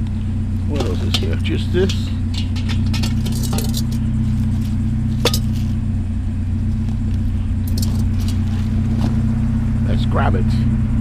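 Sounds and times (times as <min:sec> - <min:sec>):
engine idling: 0:00.0 - 0:11.0
sharp metallic clinks: 0:00.6 - 0:05.8.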